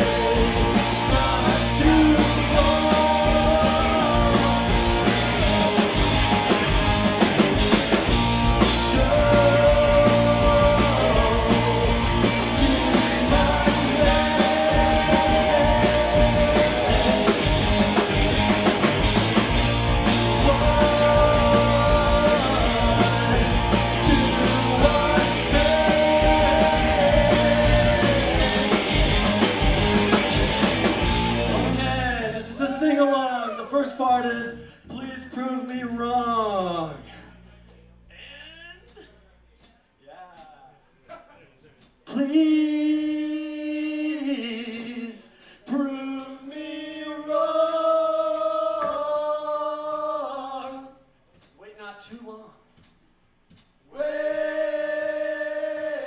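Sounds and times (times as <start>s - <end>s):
rock band playing: 0.0s - 33.0s.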